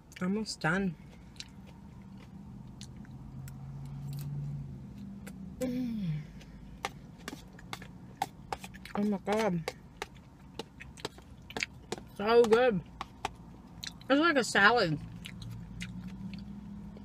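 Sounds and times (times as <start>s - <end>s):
low steady hum: 0.0s - 17.0s
chewing: 1.0s - 5.4s, 6.3s - 12.2s, 12.9s - 14.1s, 15.0s - 17.0s.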